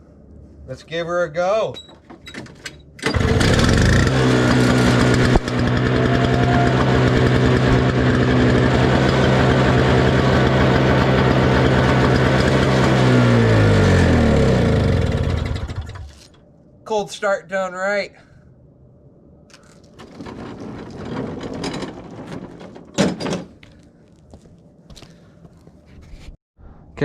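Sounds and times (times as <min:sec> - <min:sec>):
snowblower engine starting and running: 0:03.0 - 0:16.3.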